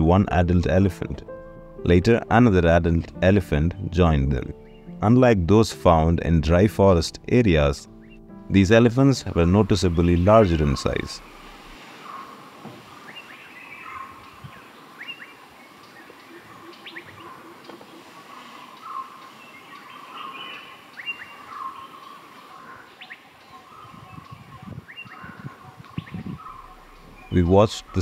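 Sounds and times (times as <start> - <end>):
birds whistling and chirping: 4.6 - 5.0, 9.8 - 28.0.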